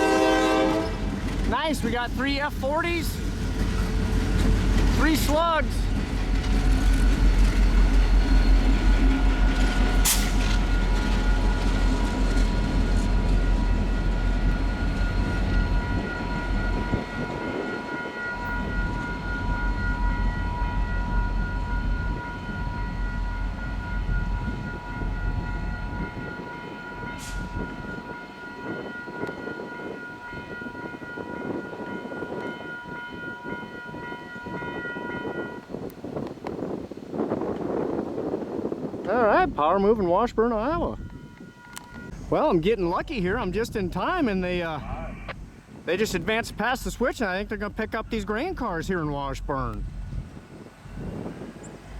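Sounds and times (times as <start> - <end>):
train horn: 0.0 - 1.2, 26.0 - 35.6, 41.1 - 42.2
locomotive engine rumble: 0.0 - 28.4, 40.4 - 51.9.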